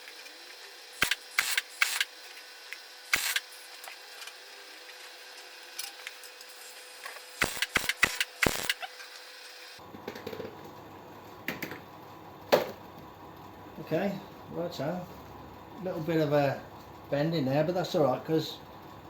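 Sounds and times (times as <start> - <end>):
welder crackling bursts: 0.0 - 9.8.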